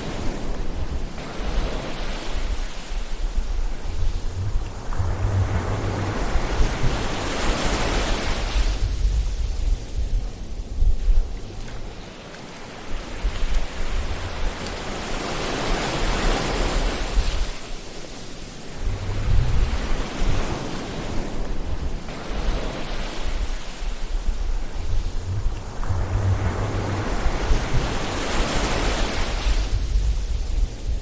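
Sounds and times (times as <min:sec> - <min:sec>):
low wind rumble: 0:00.0 - 0:31.0
ocean waves washing in: 0:00.0 - 0:31.0.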